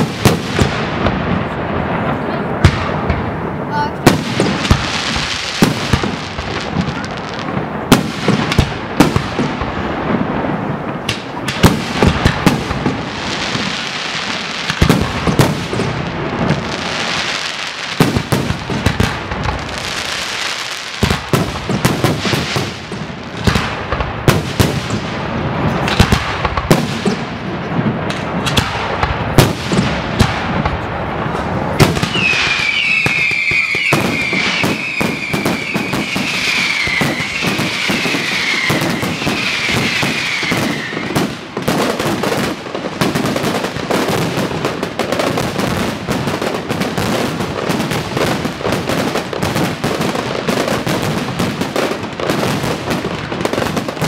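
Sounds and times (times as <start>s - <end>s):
overlapping explosions: 0.0s - 54.0s
high falling whistles: 32.1s - 41.1s.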